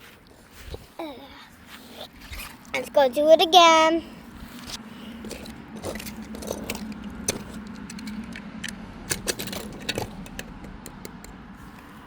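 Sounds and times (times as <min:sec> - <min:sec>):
toy trucks clicking and clacking: 0:04.6 - 0:12.0.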